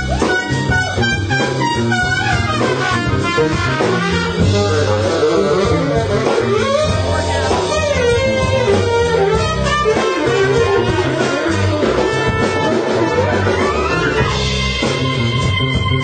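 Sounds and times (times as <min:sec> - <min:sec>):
band playing: 0:00.0 - 0:16.0
guitar with bending notes: 0:00.0 - 0:16.0.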